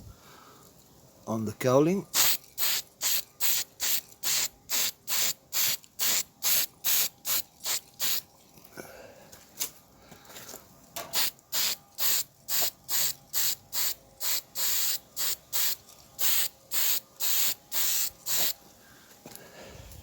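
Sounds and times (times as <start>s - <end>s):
spray paint hissing bursts: 2.1s - 8.3s, 11.0s - 18.6s.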